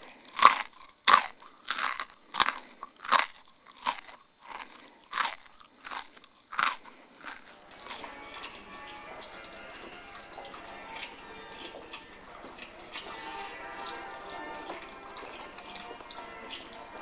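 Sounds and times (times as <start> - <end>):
chewing crunchy food: 0.0 - 17.0
faint steady hum: 0.0 - 17.0.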